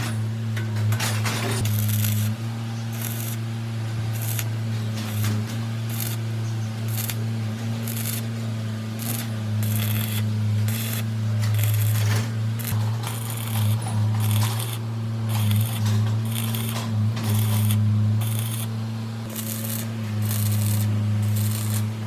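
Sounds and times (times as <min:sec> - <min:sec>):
steady low hum: 0:00.0 - 0:22.0
short scraping strokes: 0:09.0 - 0:22.0.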